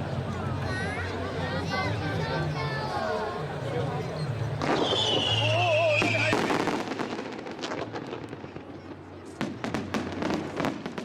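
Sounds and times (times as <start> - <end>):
firework bangs and crackles: 4.4 - 11.0
firework whistle falling in pitch: 4.7 - 6.4.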